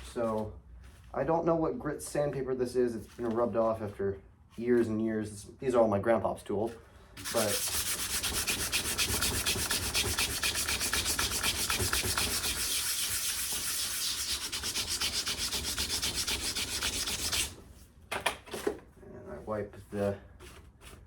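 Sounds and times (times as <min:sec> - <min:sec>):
sandpaper rubbing on rusty steel: 0:07.2 - 0:17.6.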